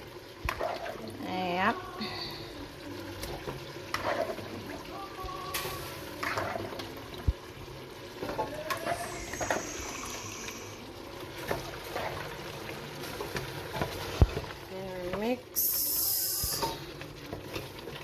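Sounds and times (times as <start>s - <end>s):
liquid sloshing in a pot: 0.2s - 1.2s, 2.5s - 15.2s.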